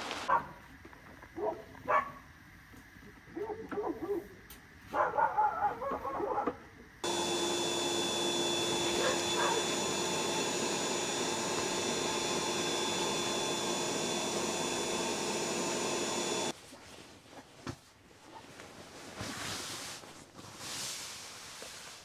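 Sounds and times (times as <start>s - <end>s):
electric blower motor whirring: 7.0s - 16.5s.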